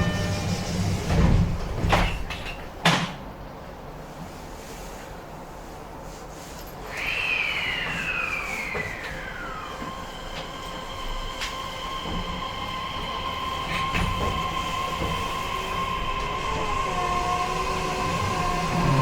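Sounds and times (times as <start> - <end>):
train traction motor whine: 0.0 - 2.1, 6.8 - 19.0
train wheels rumbling: 0.0 - 4.3, 6.6 - 19.0.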